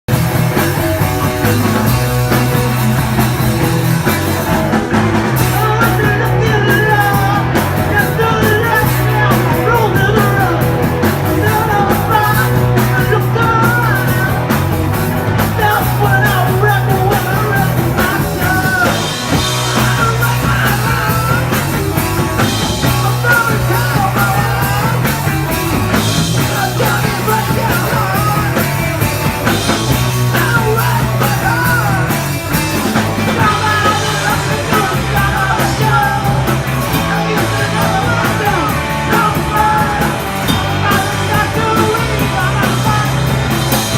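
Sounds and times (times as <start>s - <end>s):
punk rock song: 0.0s - 43.9s
person shouted singing: 22.8s - 25.3s, 26.4s - 29.0s, 33.4s - 43.3s.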